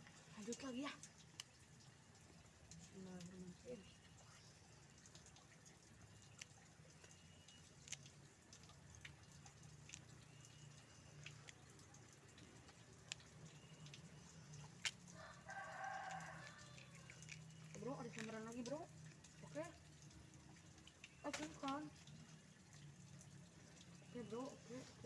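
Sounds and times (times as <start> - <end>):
faint rooster crowing: 15.1 - 17.6.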